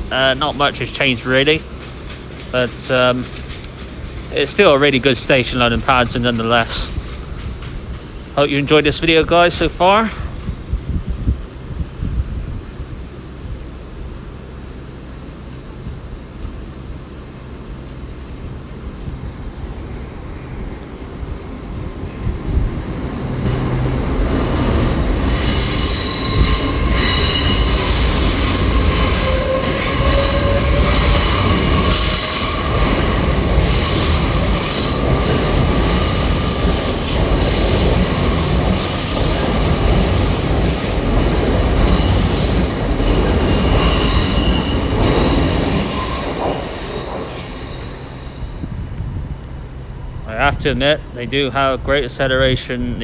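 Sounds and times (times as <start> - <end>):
train rumble: 0.0 - 53.0
train wheels squealing: 24.4 - 48.8.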